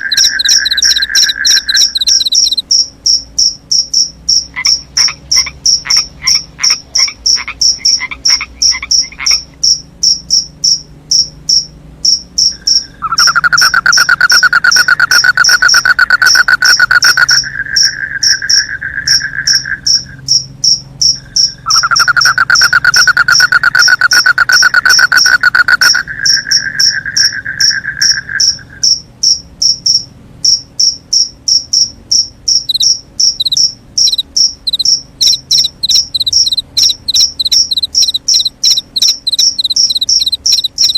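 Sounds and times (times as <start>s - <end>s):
loud pulsing trill: 0.0s - 2.6s, 12.4s - 20.4s, 21.6s - 28.6s, 32.7s - 40.9s
crickets chirping: 0.0s - 40.9s.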